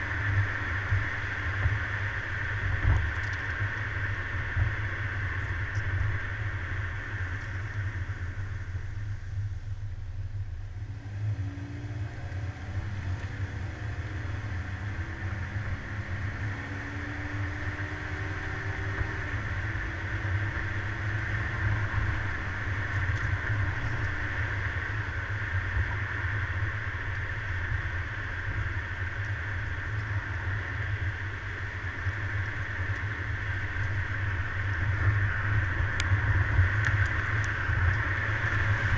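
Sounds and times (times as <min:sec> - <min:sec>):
car engine and road rumble: 0:00.0 - 0:38.9
constant high hiss: 0:18.2 - 0:38.9.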